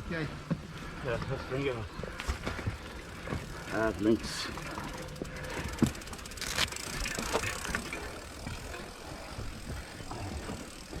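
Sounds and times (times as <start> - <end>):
bike clicks and knocks: 2.2 - 11.0.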